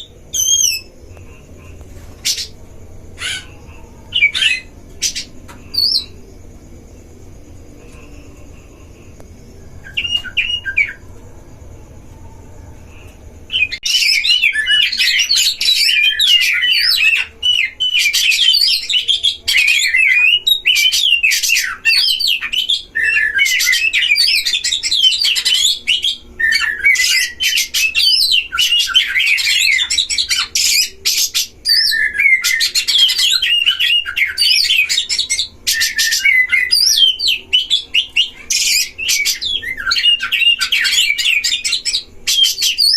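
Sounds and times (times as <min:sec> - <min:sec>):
magpie-robins singing: 0:00.0 - 0:01.0, 0:02.0 - 0:02.6, 0:03.2 - 0:06.2, 0:09.8 - 0:11.0, 0:13.5 - 0:42.9.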